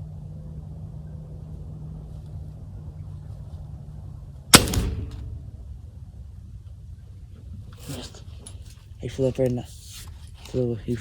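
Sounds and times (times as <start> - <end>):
steady low hum: 0.0 - 10.2
gunshot: 4.5 - 5.6.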